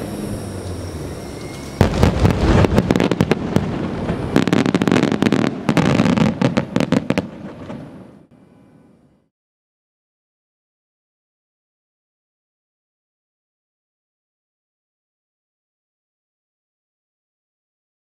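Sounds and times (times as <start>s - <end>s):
fireworks bangs and crackling: 0.7s - 8.3s.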